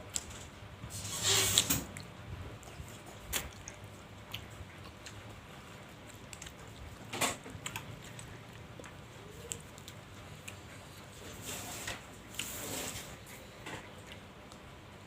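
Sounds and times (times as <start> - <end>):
eating mouth sounds: 2.0 - 11.4.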